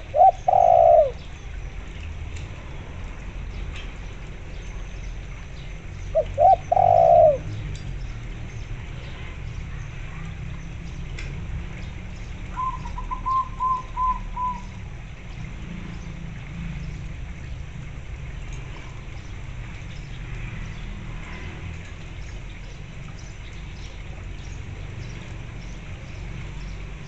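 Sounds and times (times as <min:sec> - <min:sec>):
dove loud low coo phrase: 0:00.0 - 0:01.2, 0:06.2 - 0:07.6, 0:12.6 - 0:14.8
dove quick higher coos: 0:00.1 - 0:01.2, 0:06.2 - 0:07.4.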